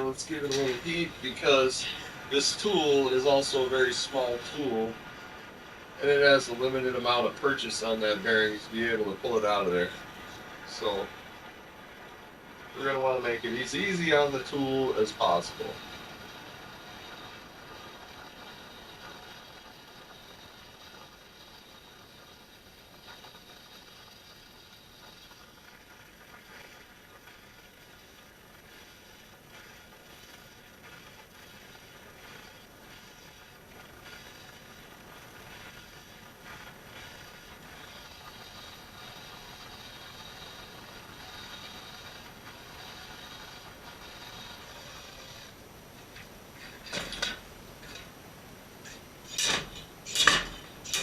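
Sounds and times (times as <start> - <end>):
heat gun whirring: 0.0 - 4.7, 37.7 - 51.0
metal tools clicking: 48.8 - 51.0.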